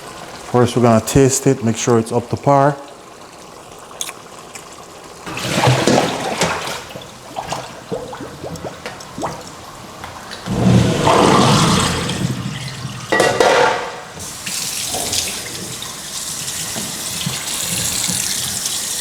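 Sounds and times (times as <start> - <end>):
tap water running into sink: 5.2 - 19.0.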